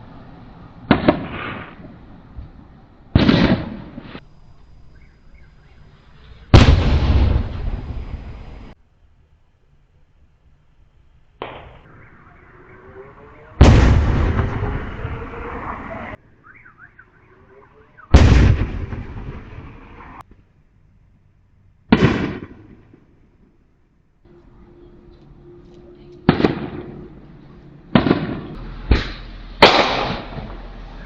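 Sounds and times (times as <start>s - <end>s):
fireworks exploding: 0.8s - 4.3s, 6.2s - 8.8s, 11.4s - 15.7s, 18.1s - 20.2s, 21.9s - 23.6s, 26.2s - 27.2s, 27.9s - 30.7s.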